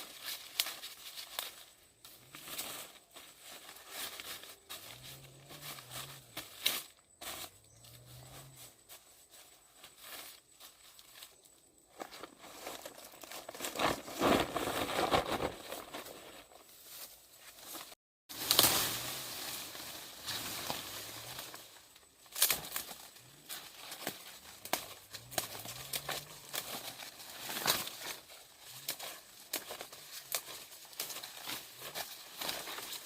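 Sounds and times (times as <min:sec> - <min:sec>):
rustling and crinkling handling noise: 0:08.4 - 0:33.0.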